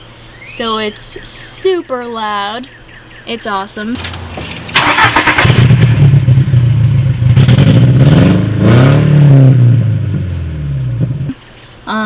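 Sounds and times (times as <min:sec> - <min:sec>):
car engine revving: 0:04.0 - 0:11.3.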